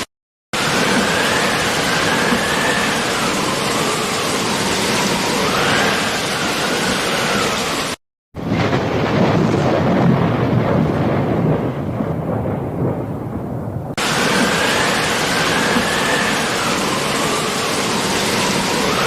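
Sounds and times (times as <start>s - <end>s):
heavy rain hissing: 0.6s - 8.0s, 14.0s - 19.0s
thunder rumbling: 0.6s - 19.0s.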